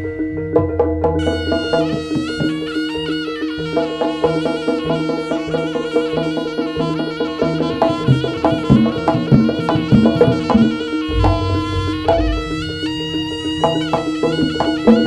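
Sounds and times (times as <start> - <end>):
reedy shawm melody: 0.0 - 15.0
drums: 8.1 - 13.0
pitched gong strokes: 11.0 - 13.4
deep low boom: 11.1 - 13.0.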